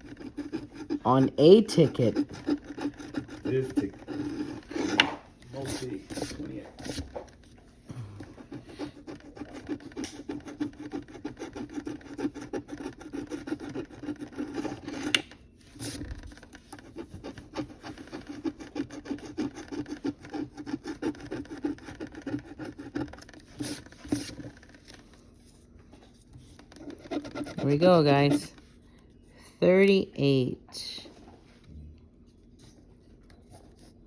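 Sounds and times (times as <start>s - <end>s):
scratching lottery ticket: 0.0s - 7.4s, 8.2s - 25.1s, 26.4s - 28.7s.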